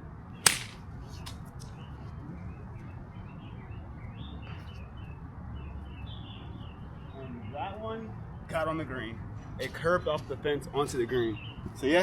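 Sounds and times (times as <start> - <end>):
faint birds chirping: 0.3 - 9.6, 11.0 - 12.0
golf club striking ball: 0.4 - 0.8.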